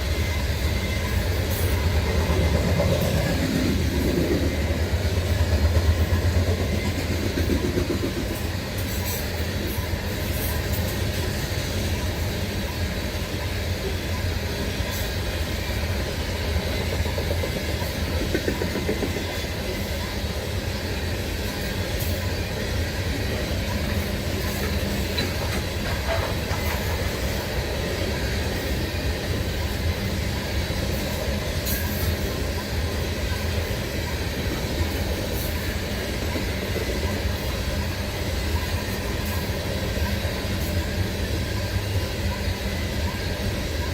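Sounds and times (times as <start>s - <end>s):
freight train rumbling on rails: 0.0s - 43.9s
train wheel clicks: 0.1s - 12.8s, 14.1s - 20.4s, 21.4s - 30.2s.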